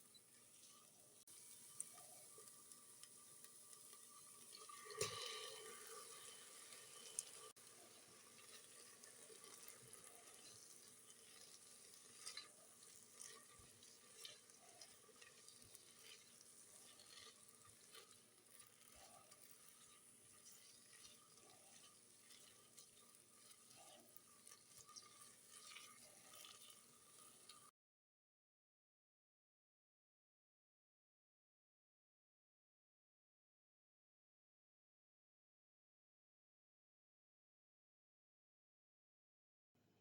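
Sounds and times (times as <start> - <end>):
food sizzling in a pan: 0.0 - 27.7.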